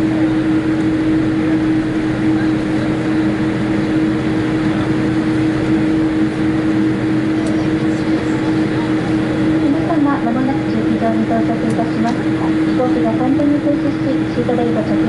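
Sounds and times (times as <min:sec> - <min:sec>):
airplane cabin engine and air noise: 0:00.0 - 0:15.0
constant low hum: 0:00.0 - 0:15.0.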